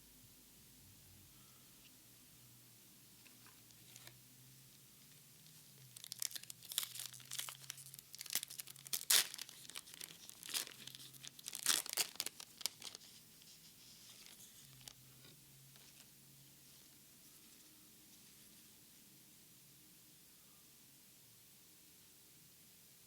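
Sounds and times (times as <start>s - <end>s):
foil wrapper tearing and crinkling: 5.8s - 13.1s, 14.2s - 15.0s.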